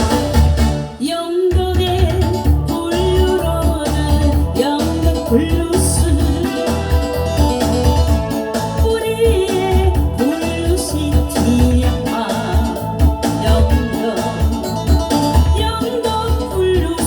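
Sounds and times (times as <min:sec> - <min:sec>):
backing track with bass beat: 0:00.0 - 0:17.0
person singing blues: 0:01.0 - 0:07.1, 0:08.9 - 0:14.8, 0:15.5 - 0:17.0.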